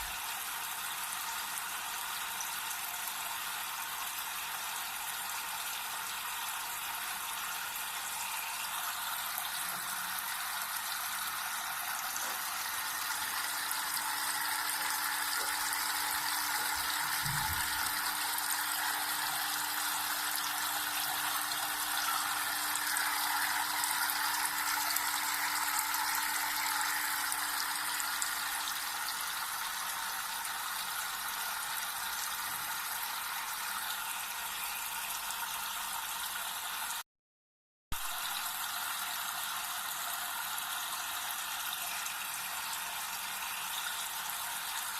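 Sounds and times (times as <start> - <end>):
small fountain water splashing: 0.0 - 37.0, 38.0 - 44.9
soft low thump: 17.2 - 17.8.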